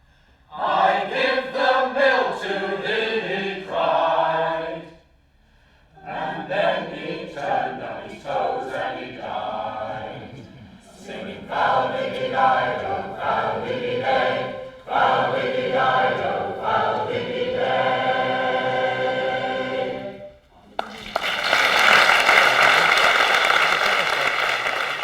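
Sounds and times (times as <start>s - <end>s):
choir singing: 0.5s - 5.1s, 5.9s - 25.0s
audience applause: 20.8s - 25.0s.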